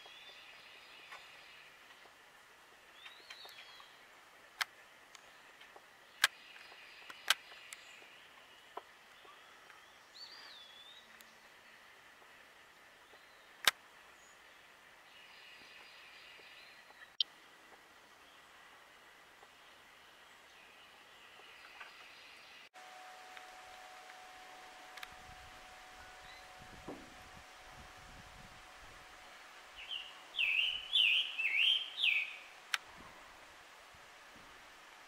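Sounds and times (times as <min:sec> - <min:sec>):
faint distant birds: 0:00.0 - 0:35.0
sharp clicks: 0:24.9 - 0:25.4
bird whistling slurred notes: 0:25.6 - 0:26.7, 0:29.7 - 0:32.4.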